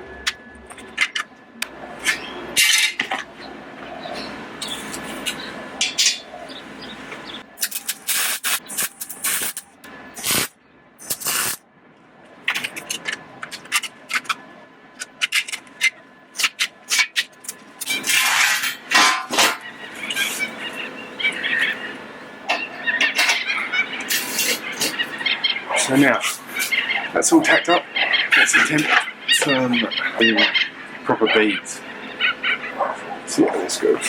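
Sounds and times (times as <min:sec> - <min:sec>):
welding arc crackle: 0:07.6 - 0:11.6.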